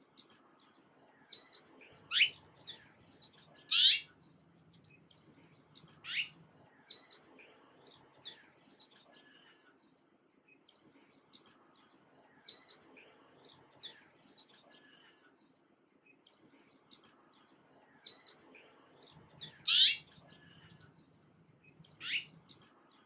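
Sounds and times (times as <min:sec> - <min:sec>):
small birds chirping: 0:00.0 - 0:09.6, 0:10.5 - 0:15.5, 0:16.1 - 0:23.0.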